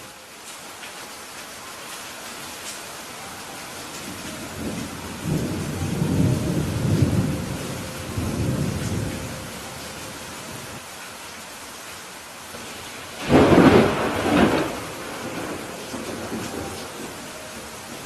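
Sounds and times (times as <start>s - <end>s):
steady rain falling: 0.0s - 18.0s
thunder rumbling: 4.1s - 10.8s, 12.6s - 18.0s.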